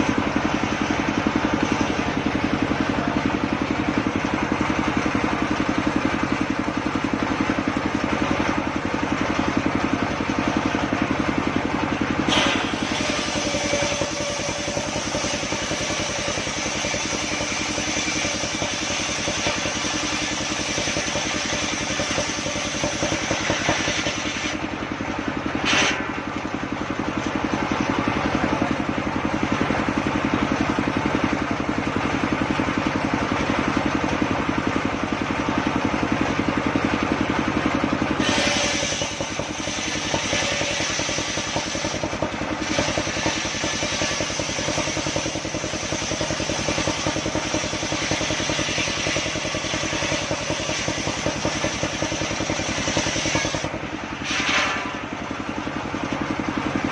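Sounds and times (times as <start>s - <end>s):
saw cutting a log: 0.0s - 26.3s, 37.8s - 55.2s
sawmill engine running: 0.0s - 56.9s.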